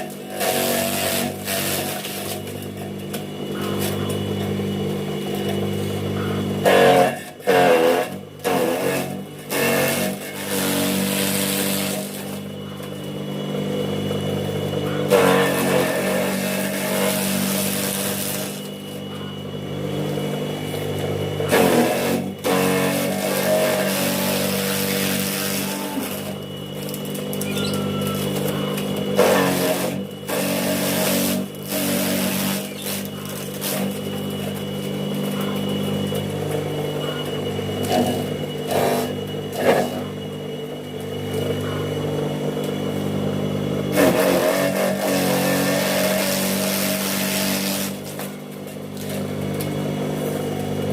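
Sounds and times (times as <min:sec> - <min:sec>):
motor humming: 0:00.0 - 0:50.9
blades chopping grass: 0:14.8 - 0:36.6, 0:43.9 - 0:50.9.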